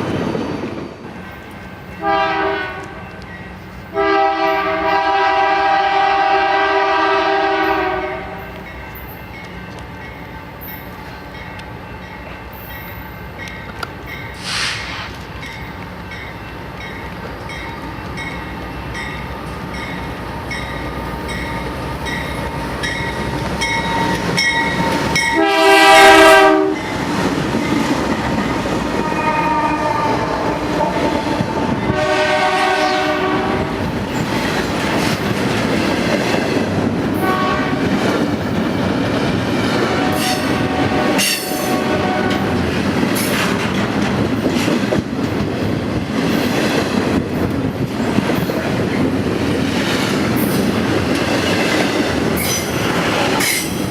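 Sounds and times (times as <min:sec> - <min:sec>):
train rumbling past: 0:00.0 - 0:53.9
locomotive horn blasts: 0:02.0 - 0:03.2, 0:03.9 - 0:08.6, 0:25.2 - 0:26.9, 0:29.0 - 0:33.8, 0:37.2 - 0:37.9, 0:39.8 - 0:42.6.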